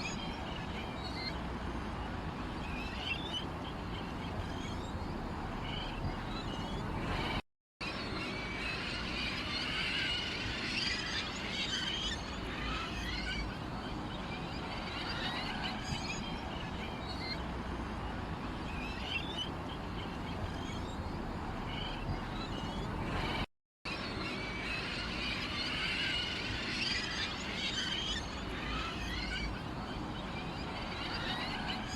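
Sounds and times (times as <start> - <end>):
songbirds chirping: 0.0 - 31.9
low background rumble: 0.3 - 7.4.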